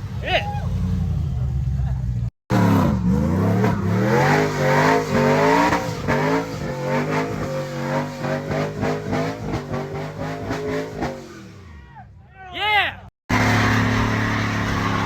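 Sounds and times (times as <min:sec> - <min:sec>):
engine revving: 0:00.0 - 0:11.6, 0:13.3 - 0:15.0.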